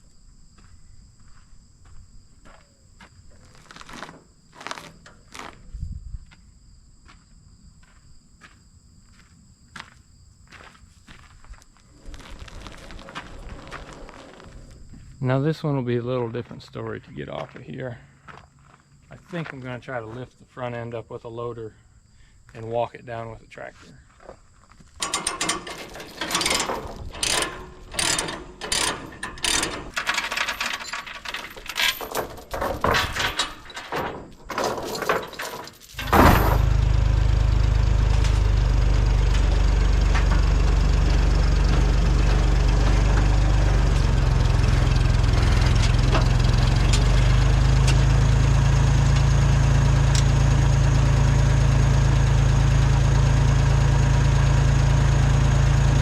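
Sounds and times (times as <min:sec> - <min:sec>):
tractor engine starting and running: 0:11.9 - 0:15.2, 0:25.0 - 0:56.0
metal clanking and rattling: 0:25.0 - 0:48.1.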